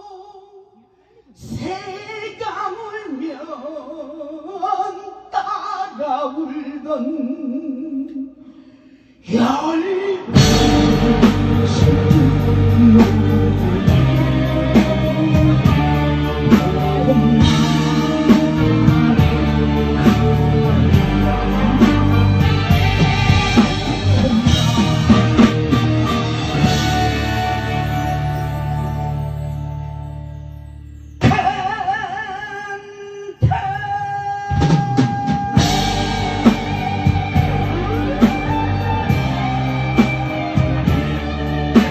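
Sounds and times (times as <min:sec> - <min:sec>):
live band instrumental music: 0:10.3 - 0:32.2, 0:34.4 - 0:41.9
drum fill: 0:10.4 - 0:28.4, 0:34.5 - 0:41.9.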